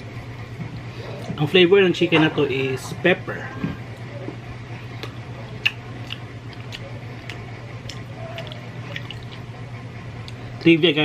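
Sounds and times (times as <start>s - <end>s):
steady low hum: 0.0s - 11.0s
wet mouth clicks and smacks: 5.0s - 9.5s
chewing: 5.0s - 9.6s.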